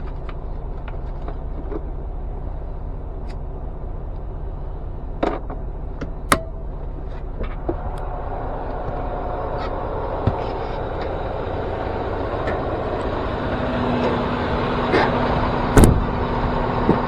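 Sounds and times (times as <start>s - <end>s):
truck engine rumble: 0.0s - 17.0s
sharp clicks and knocks: 6.3s - 6.8s.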